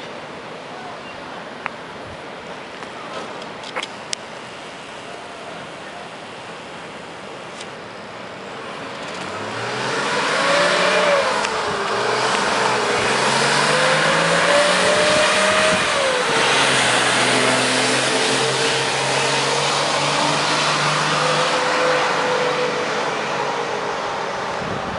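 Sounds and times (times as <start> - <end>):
diesel engine accelerating: 8.6 - 24.9.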